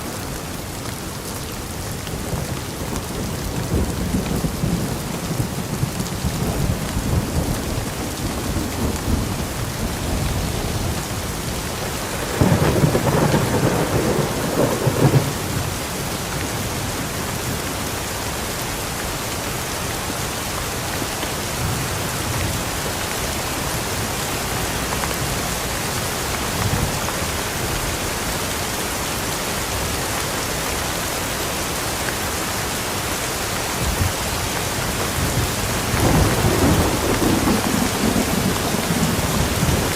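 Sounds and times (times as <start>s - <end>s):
steady rain falling: 0.0s - 39.9s
thunder rumbling: 0.1s - 15.7s, 35.0s - 39.9s.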